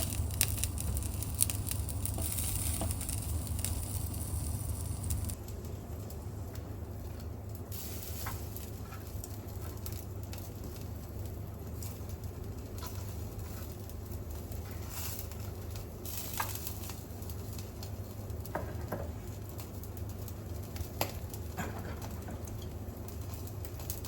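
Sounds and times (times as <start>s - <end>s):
fat popping on grill: 0.0s - 5.4s
meat sizzling on grill: 0.0s - 5.4s, 7.7s - 21.6s
range hood fan humming: 0.0s - 24.0s.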